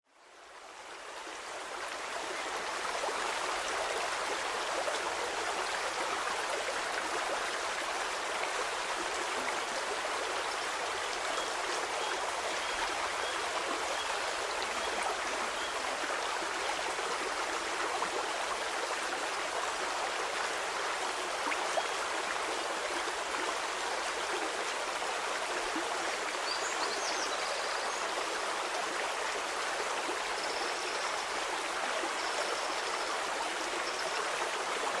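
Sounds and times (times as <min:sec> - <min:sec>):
stream flowing over stones: 0:00.2 - 0:35.0.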